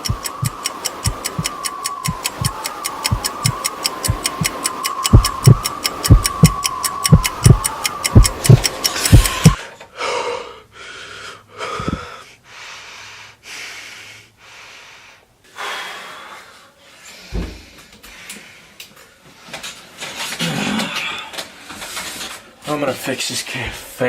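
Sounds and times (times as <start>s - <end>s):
low thumps: 0.0s - 9.6s
person breathing heavily: 9.1s - 18.7s.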